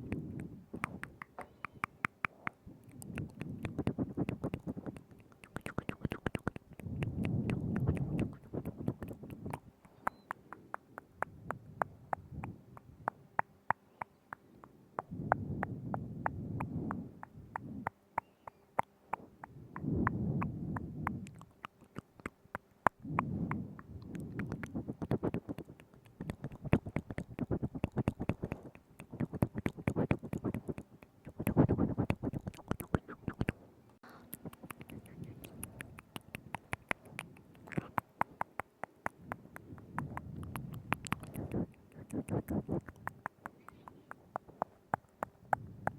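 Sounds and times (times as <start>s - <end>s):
wet lip and tongue clicks: 0.0s - 45.9s.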